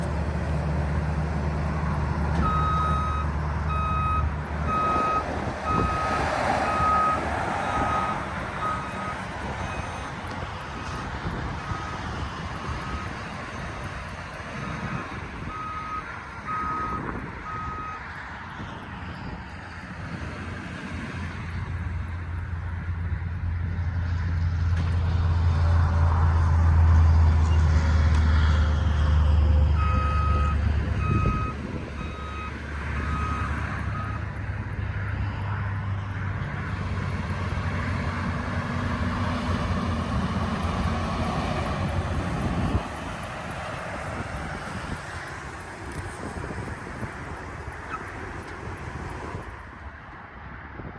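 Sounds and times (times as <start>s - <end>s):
bus engine drone: 0.0s - 50.9s
reversing alarm beeping: 2.0s - 11.1s, 14.7s - 18.0s, 29.8s - 34.3s.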